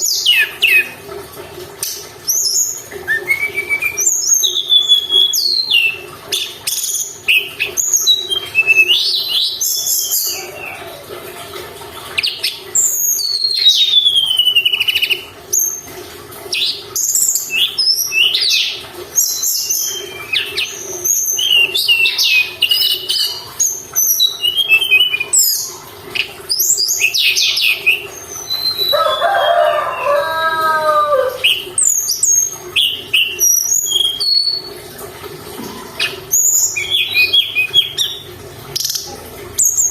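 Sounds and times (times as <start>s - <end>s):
bird singing high whistles: 2.4s - 6.0s.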